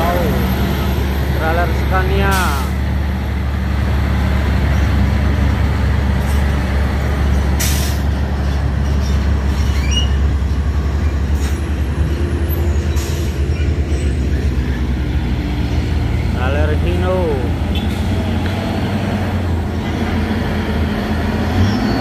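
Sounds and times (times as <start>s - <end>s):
diesel truck engine running: 0.0s - 22.0s
air brake hiss: 7.6s - 8.0s.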